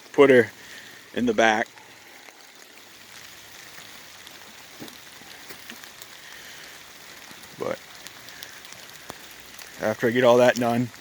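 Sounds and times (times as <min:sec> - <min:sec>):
steady hissing noise: 0:00.0 - 0:11.0
faint ticks: 0:03.6 - 0:11.0.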